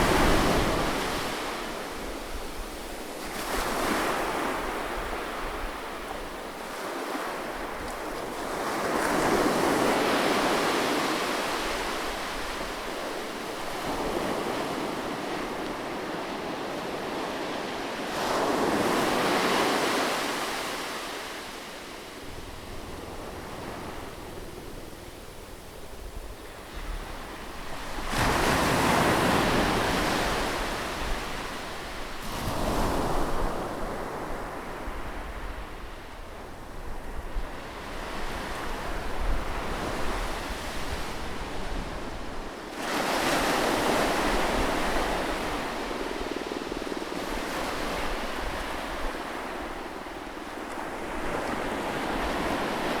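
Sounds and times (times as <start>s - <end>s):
sea waves breaking on shore: 0.0s - 35.4s.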